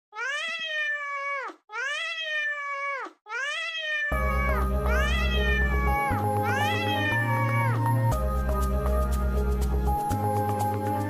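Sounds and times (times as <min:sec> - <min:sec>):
cat meowing: 0:00.1 - 0:07.9
music with bass line: 0:04.2 - 0:11.0.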